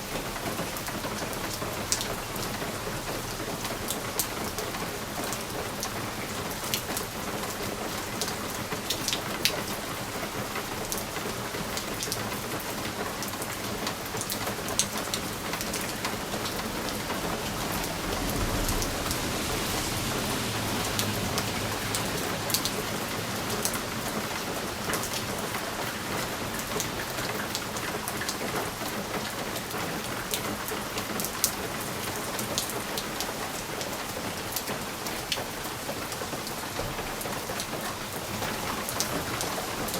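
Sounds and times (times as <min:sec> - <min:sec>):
rain on window glass: 0:00.0 - 0:39.9
distant thunder rumble: 0:15.8 - 0:23.0.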